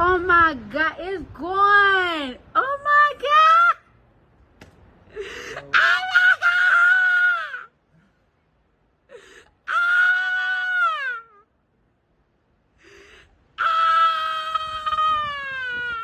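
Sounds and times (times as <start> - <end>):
sharp gasping breath: 12.8 - 13.4.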